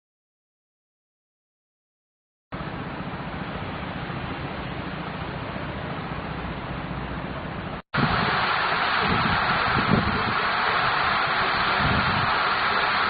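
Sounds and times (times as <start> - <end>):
steady rushing noise: 8.0 - 13.0.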